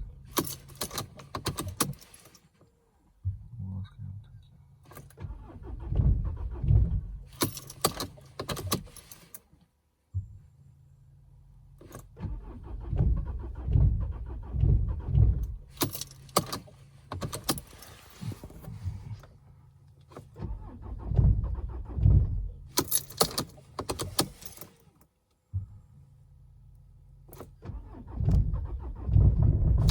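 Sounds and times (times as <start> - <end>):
diesel engine cranking: 0.0 - 2.5, 4.9 - 9.4, 11.8 - 25.9, 27.2 - 29.9.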